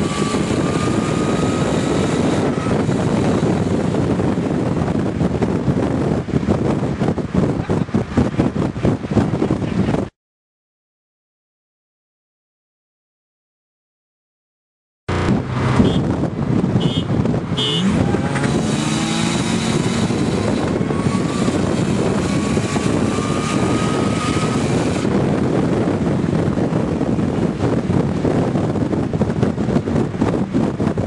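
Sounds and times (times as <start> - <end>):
car engine accelerating hard: 15.1 - 31.0.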